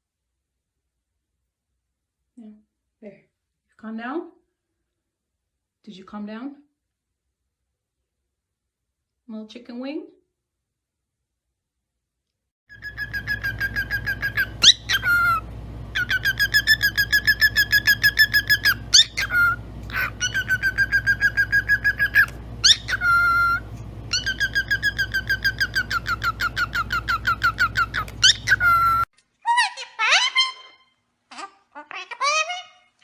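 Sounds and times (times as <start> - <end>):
steady low hum: 12.7 - 29.1
bird chirping: 12.7 - 33.0.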